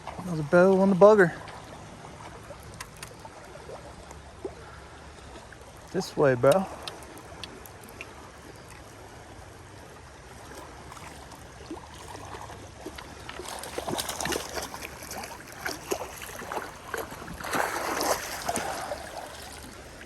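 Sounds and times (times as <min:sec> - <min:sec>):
creek water rushing: 0:00.0 - 0:20.0
fish thrashing at water surface: 0:10.5 - 0:20.0.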